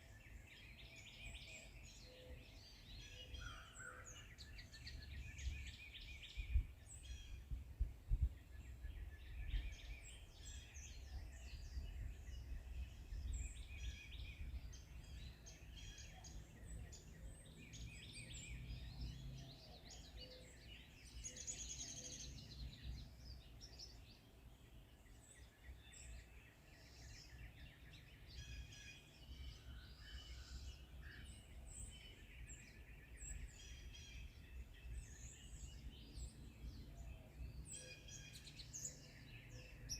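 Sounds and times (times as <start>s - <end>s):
forest birds chirping: 0.0s - 39.9s.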